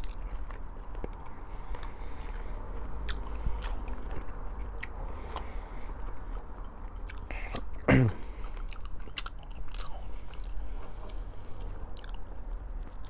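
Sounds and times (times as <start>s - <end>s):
person chewing food: 0.0s - 13.0s
steady low hum: 0.0s - 13.0s.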